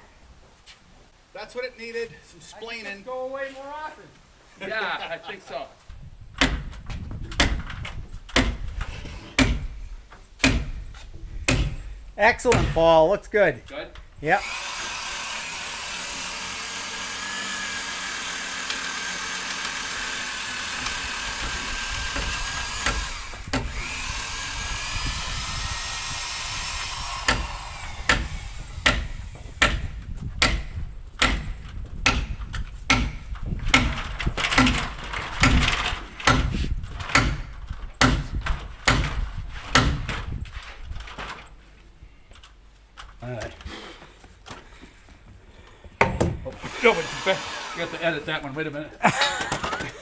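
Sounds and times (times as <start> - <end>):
hammer blows on timber: 9.4 - 9.8, 10.4 - 12.9, 26.9 - 34.0
electric drill running: 14.3 - 29.6, 46.6 - 48.3.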